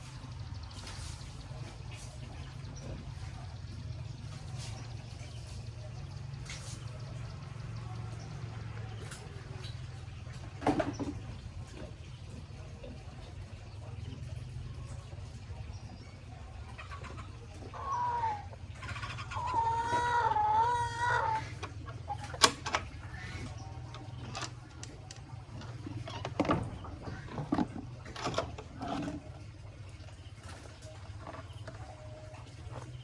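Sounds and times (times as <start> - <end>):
steady low hum: 0.0 - 33.0
chicken calling: 16.8 - 22.4.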